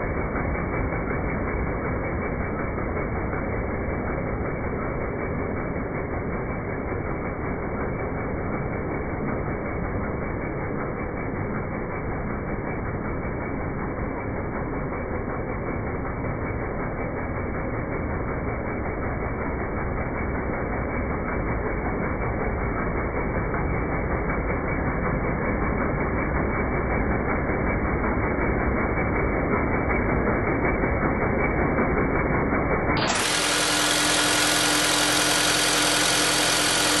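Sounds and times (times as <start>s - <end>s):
bright steady hum with tones: 0.0s - 37.0s
petrol engine running: 0.0s - 37.0s.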